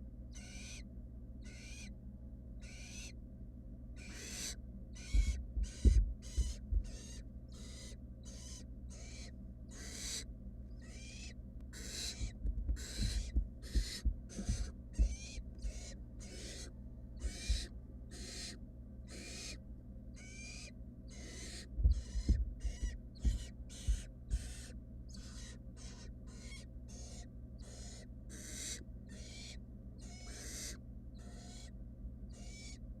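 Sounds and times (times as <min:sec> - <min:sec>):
owl nestlings hissing begging calls: 0:00.3 - 0:00.8, 0:01.4 - 0:01.9, 0:02.6 - 0:03.2, 0:04.0 - 0:32.8
low thumps: 0:05.1 - 0:07.1, 0:12.1 - 0:15.8, 0:21.8 - 0:24.5.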